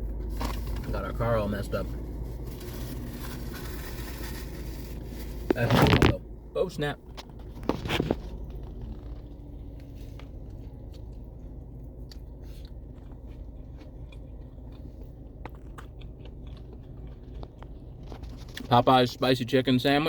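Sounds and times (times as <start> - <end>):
steady low hum: 0.0 - 20.0
chewing crispy fried chicken: 7.3 - 18.7.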